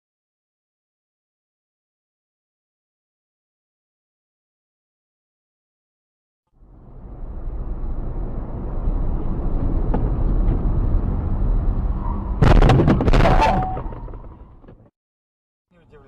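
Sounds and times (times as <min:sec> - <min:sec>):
road and engine rumble: 0:06.5 - 0:14.9, 0:15.7 - 0:16.0
car crash impact: 0:12.4 - 0:14.8.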